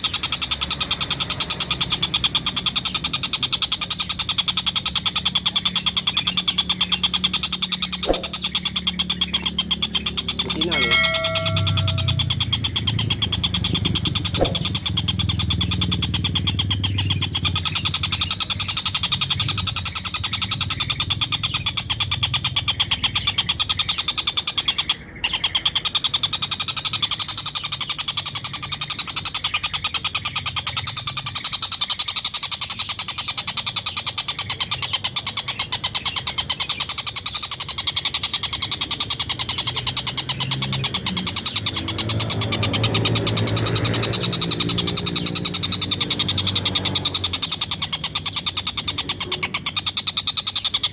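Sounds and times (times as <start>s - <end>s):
kingfisher cackling call: 9.8s - 15.1s.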